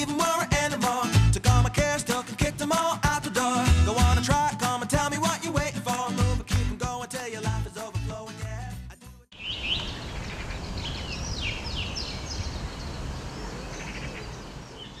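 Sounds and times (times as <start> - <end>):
music: 0.0 - 9.3
birds chirping and singing: 9.4 - 15.0
outdoor background noise: 9.4 - 15.0.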